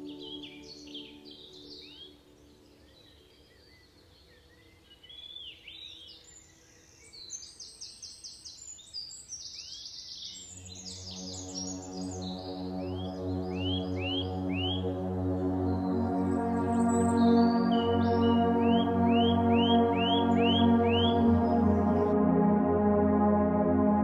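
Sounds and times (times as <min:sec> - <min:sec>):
ambient music drone: 0:00.0 - 0:04.0, 0:10.4 - 0:24.0
birds chirping: 0:00.0 - 0:05.4, 0:10.2 - 0:22.2
high repeated bird notes: 0:10.9 - 0:24.0.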